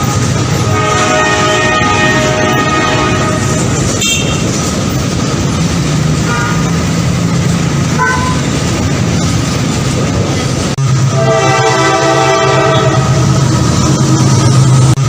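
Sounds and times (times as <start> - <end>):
train rumbling on rails: 0.0 - 15.0
train horn toots: 0.6 - 4.6, 6.2 - 6.8, 8.0 - 8.5, 11.1 - 13.4.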